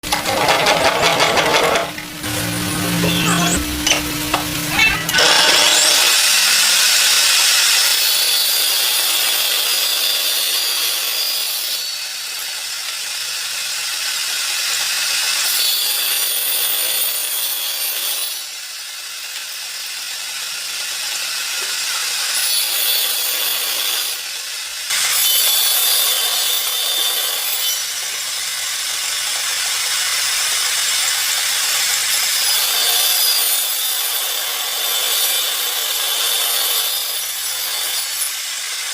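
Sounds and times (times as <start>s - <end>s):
tool rasping wood: 5.0s - 6.6s.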